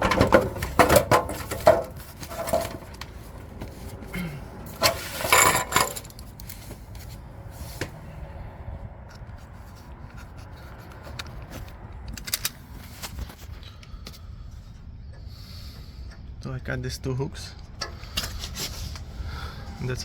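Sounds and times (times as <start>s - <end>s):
metal parts and tools clinking: 0.0s - 3.0s, 4.7s - 6.6s.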